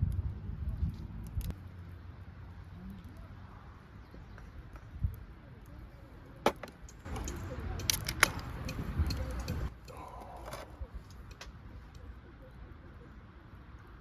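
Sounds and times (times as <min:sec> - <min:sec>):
sharp clicks and clinks: 0:06.5 - 0:11.5.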